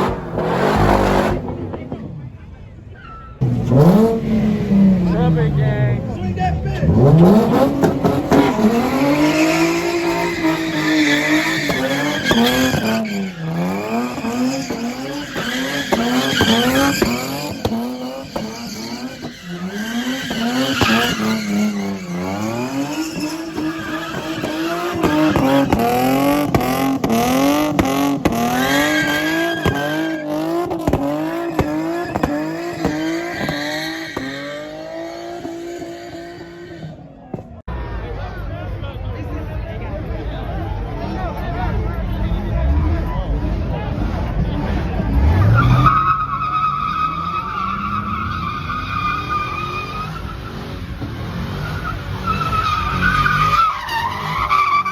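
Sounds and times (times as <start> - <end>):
car engine revving: 0.0 - 2.8, 3.4 - 37.5, 39.2 - 54.9
tyres squealing: 6.7 - 37.0, 45.1 - 50.6, 51.6 - 54.9.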